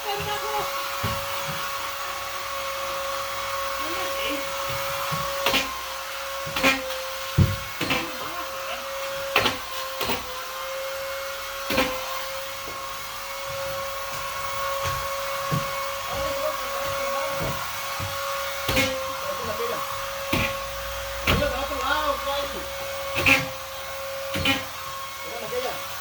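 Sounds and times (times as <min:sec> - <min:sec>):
vacuum cleaner running: 0:00.0 - 0:26.0
sharp knocks: 0:06.4 - 0:08.2.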